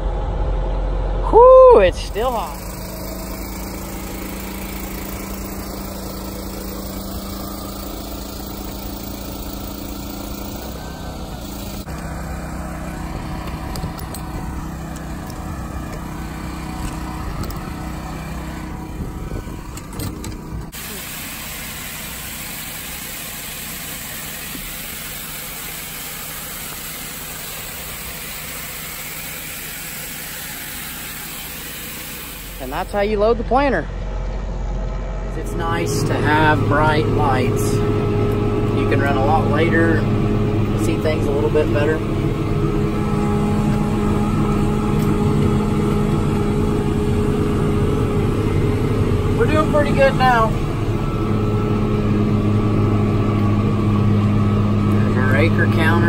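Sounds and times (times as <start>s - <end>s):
conveyor and engine running: 0.0s - 56.0s
seeds pouring into hopper: 2.2s - 12.6s, 20.8s - 32.7s.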